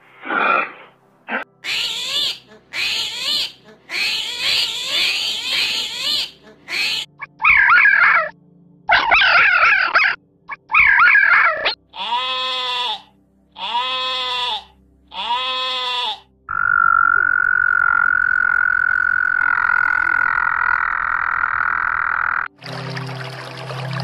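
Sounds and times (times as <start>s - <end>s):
fox high-pitched cries: 1.6s - 16.2s
frog calling: 10.5s - 22.5s
sheep bleating: 12.0s - 16.3s.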